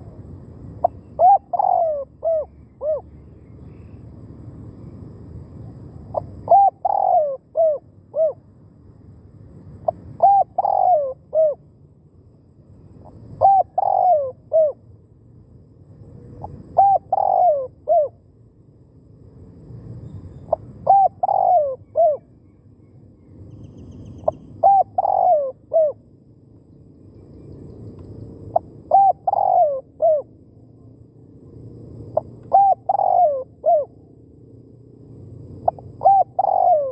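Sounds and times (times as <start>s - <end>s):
dove cooing: 0.8s - 3.2s, 6.1s - 8.4s, 9.9s - 11.6s, 13.0s - 14.8s, 16.4s - 18.2s, 20.5s - 22.3s, 24.2s - 26.0s, 28.5s - 30.3s, 32.2s - 34.0s, 35.6s - 36.9s.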